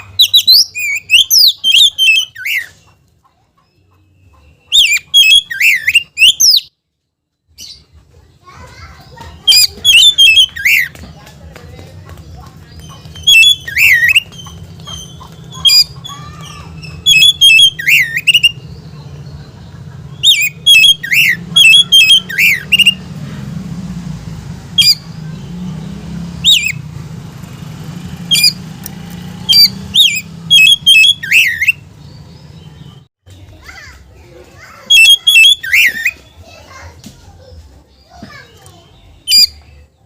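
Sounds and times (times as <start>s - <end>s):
bird chirping and whistling: 0.0s - 2.9s, 4.5s - 6.8s, 9.4s - 11.0s, 12.7s - 18.9s, 20.1s - 23.2s, 24.7s - 26.9s, 27.5s - 33.0s, 34.8s - 36.3s, 39.2s - 39.7s.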